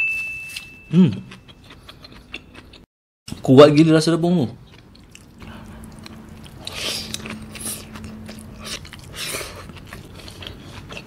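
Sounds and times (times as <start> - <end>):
close chewing: 1.2 - 2.9, 4.6 - 11.0.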